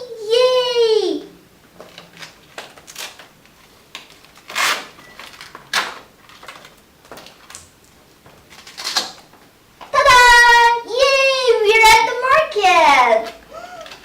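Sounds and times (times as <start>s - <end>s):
rustling and scraping of handling: 1.6s - 10.0s, 11.7s - 14.0s.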